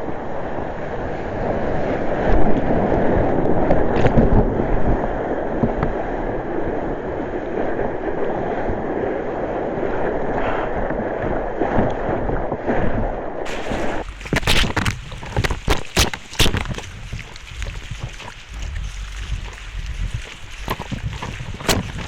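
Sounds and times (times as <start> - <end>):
wind buffeting microphone: 0.0 - 22.0
surf rushing: 13.5 - 22.0.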